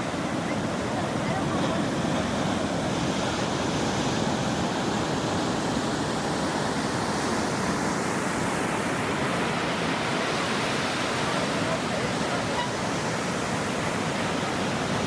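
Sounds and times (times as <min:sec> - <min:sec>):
surf washing on shore: 0:00.0 - 0:15.0.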